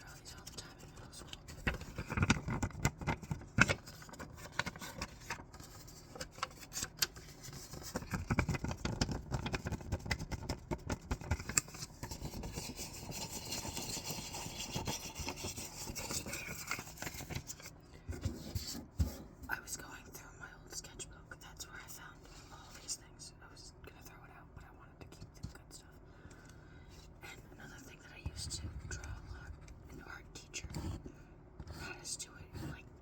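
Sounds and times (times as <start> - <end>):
paper handling: 1.2 - 17.7.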